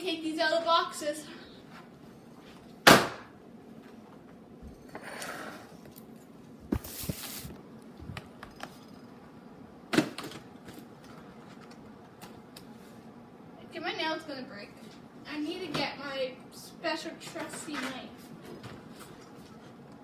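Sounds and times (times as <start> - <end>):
cardboard scraping and rustling: 6.7 - 7.5.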